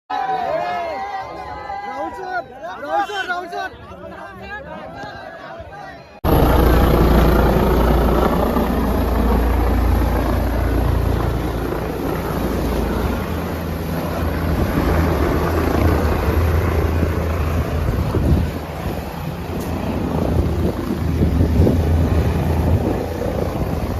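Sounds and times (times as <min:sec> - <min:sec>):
helicopter rotor and engine noise: 0:06.2 - 0:23.9.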